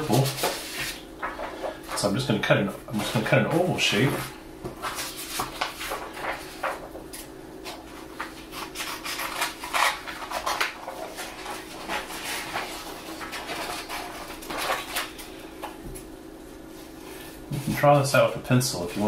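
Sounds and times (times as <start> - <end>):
paper rustling: 0.0 - 2.3, 2.9 - 15.6.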